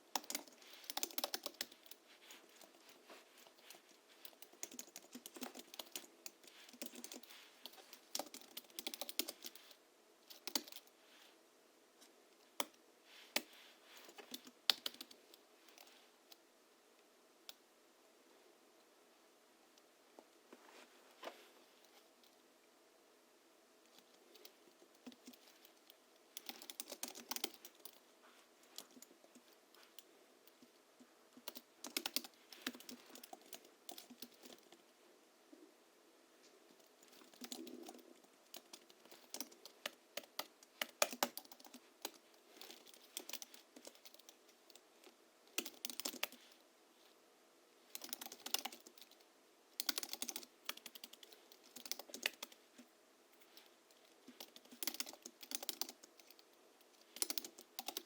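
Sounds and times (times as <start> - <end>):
typing on keyboard: 0.1 - 2.0, 4.2 - 9.7, 10.3 - 10.9, 14.1 - 15.9, 26.4 - 28.0, 31.4 - 34.7, 37.0 - 44.8, 45.5 - 46.4, 47.9 - 49.2, 49.8 - 52.6, 54.3 - 56.5, 57.1 - 58.0.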